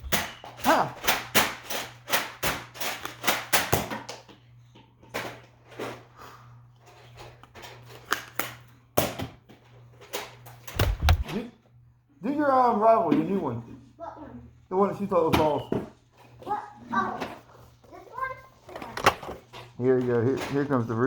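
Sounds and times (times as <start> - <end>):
foam darts hitting: 10.7 - 11.3.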